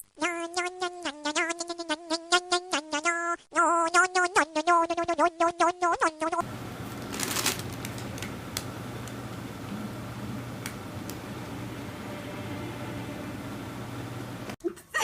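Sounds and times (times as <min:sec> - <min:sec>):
steady low hum: 0:06.4 - 0:14.6.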